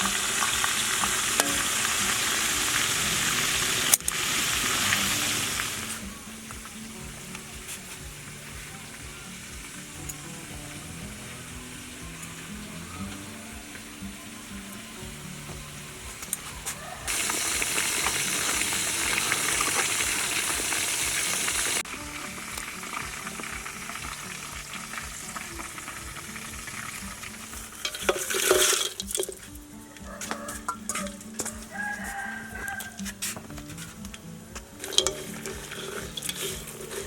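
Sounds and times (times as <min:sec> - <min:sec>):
chicken sizzling in a pan: 0:00.0 - 0:37.0.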